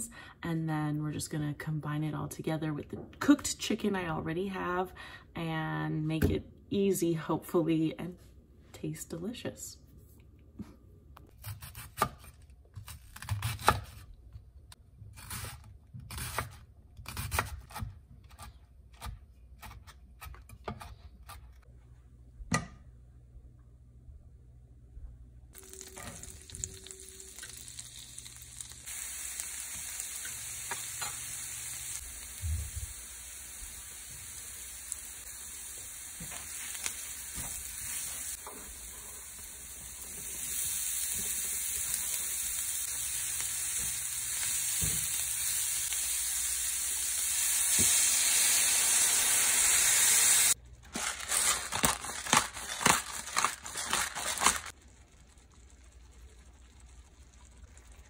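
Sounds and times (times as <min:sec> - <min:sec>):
food sizzling in skillet: 0:25.6 - 0:50.6.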